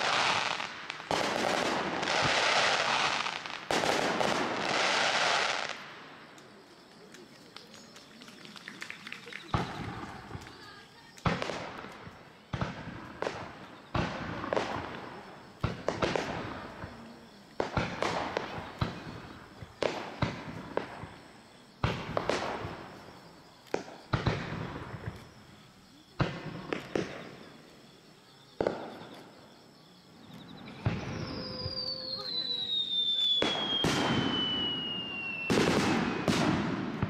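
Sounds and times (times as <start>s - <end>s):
falling whistle: 30.6s - 35.7s
firework shells bursting: 30.6s - 37.0s.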